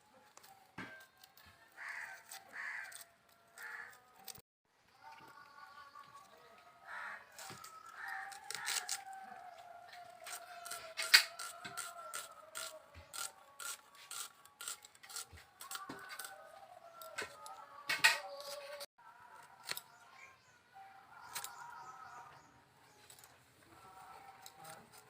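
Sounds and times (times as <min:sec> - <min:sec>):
sharp clicks and scraping: 0:02.2 - 0:04.4, 0:10.2 - 0:18.9.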